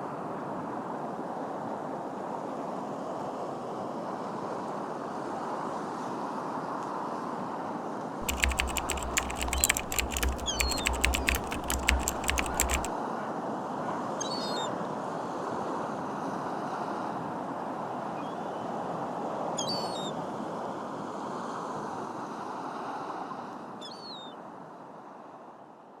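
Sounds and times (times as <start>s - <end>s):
sharp clicks and knocks: 8.2s - 12.9s.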